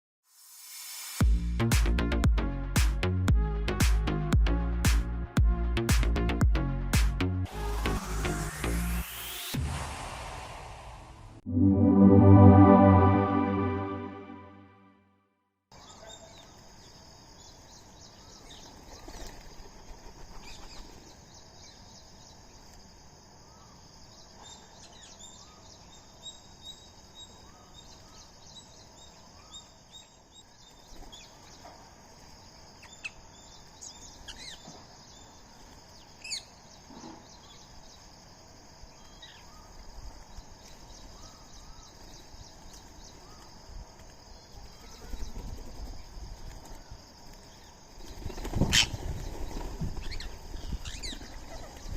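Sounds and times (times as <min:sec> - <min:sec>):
birds chirping and calling: 0:48.7 - 0:51.9.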